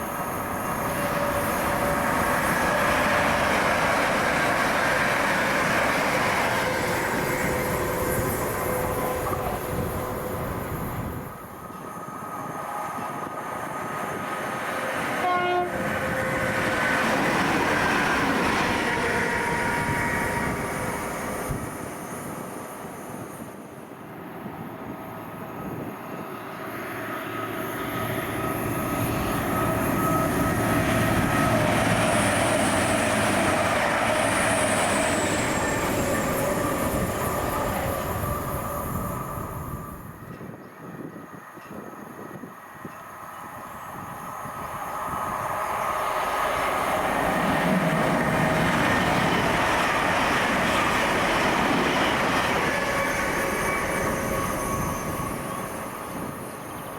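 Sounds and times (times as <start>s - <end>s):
trains passing at speed: 0.0s - 56.9s
train horn: 14.8s - 16.6s, 52.5s - 55.1s.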